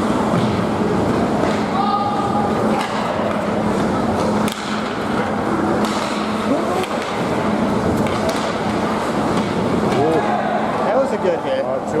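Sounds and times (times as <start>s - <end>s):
sticks and puck clacking: 2.7s - 10.1s.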